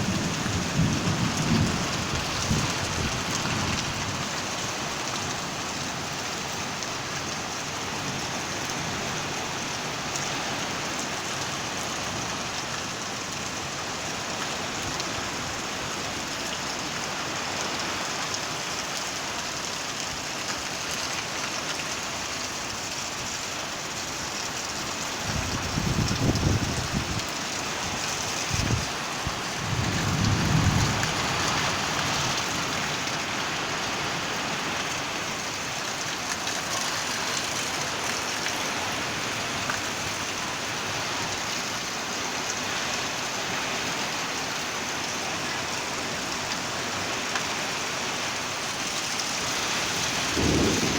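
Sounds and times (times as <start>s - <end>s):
low thunder rumbling: 0.0s - 4.0s, 28.5s - 32.5s, 50.0s - 50.9s
heavy rain falling: 0.0s - 50.9s.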